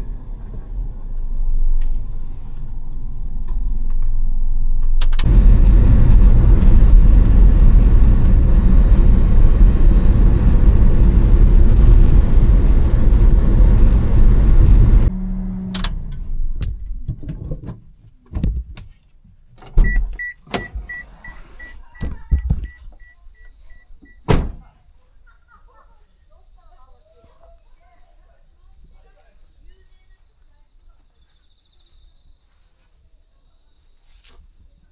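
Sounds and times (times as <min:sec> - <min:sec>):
vehicle running noise: 0:00.0 - 0:17.6.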